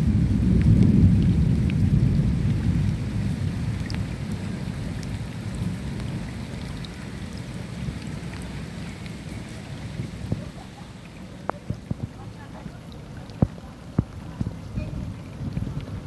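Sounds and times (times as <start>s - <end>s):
rolling thunder: 0.0s - 6.7s
steady rain: 0.0s - 16.0s.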